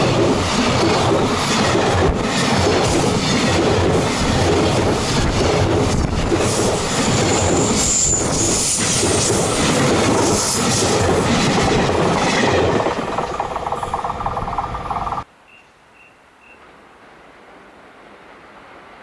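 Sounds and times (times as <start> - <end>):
train wheels rumbling on rail: 0.0 - 15.3
high wheel squeal: 6.8 - 15.2.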